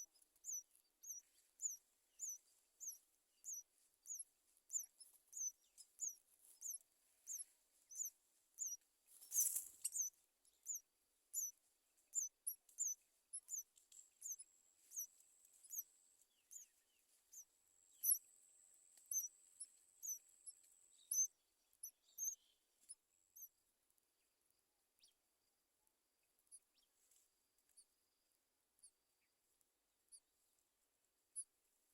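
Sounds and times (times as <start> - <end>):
small birds high chirps: 0.0 - 23.6, 25.0 - 25.2
rustle: 5.6 - 10.2.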